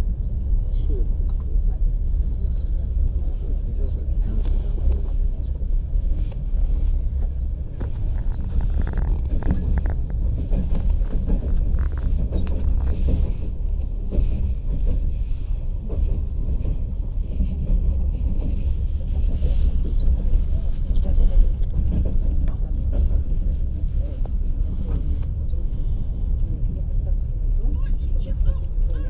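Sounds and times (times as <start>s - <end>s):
train wheels rumbling on rails: 0.0s - 29.0s
faint track clicks: 7.1s - 15.1s, 18.4s - 25.6s.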